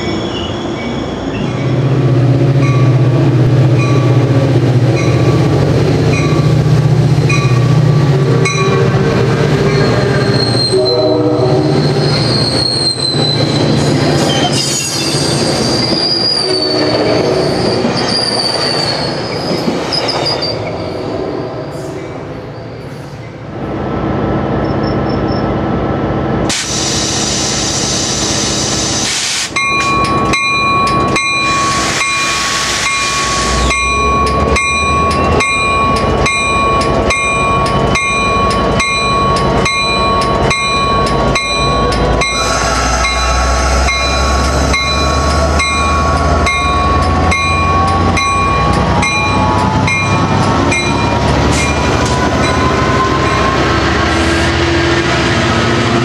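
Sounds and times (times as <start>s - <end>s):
diesel locomotive passing: 0.0s - 56.0s
bell ringing: 29.6s - 53.6s.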